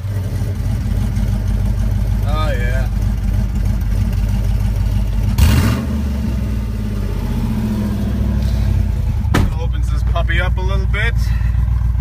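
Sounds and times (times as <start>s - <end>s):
loud car exhaust revving: 0.0s - 9.6s.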